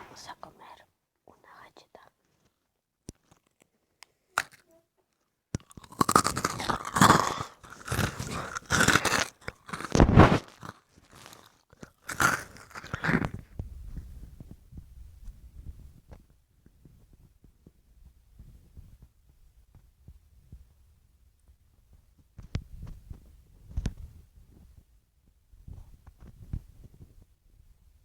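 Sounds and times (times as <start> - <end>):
crunching and chewing food: 3.1 - 13.6.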